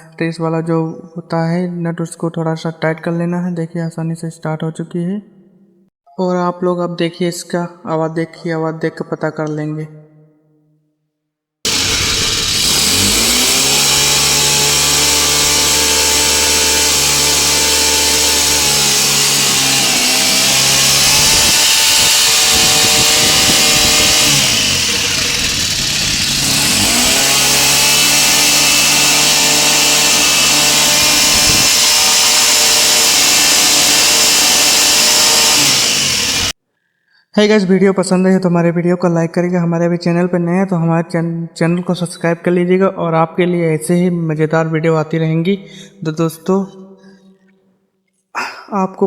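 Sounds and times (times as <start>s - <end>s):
small petrol engine revving: 11.7s - 36.6s.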